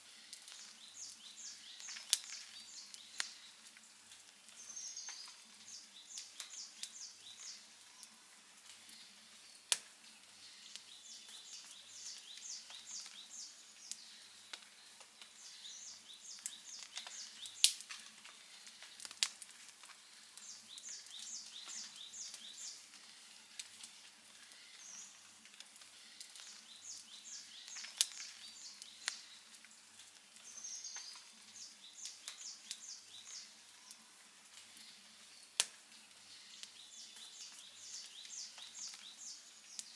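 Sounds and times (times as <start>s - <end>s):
campfire crackling: 0.0s - 39.9s
fire pops and snaps: 0.3s - 5.4s, 6.1s - 7.5s, 9.6s - 10.0s, 16.2s - 31.3s, 32.0s - 33.4s, 35.6s - 36.0s, 36.6s - 39.9s.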